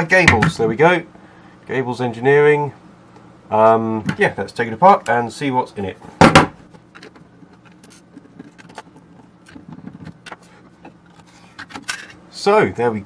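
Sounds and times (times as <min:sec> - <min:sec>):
low steady hum: 0:00.0 - 0:13.0
clicks and rattles of handling: 0:06.7 - 0:12.2.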